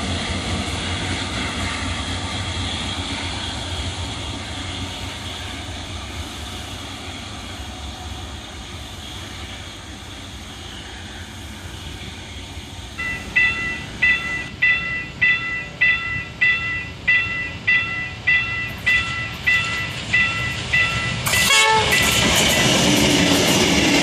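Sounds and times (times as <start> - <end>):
diesel locomotive rumble: 0.0 - 24.0.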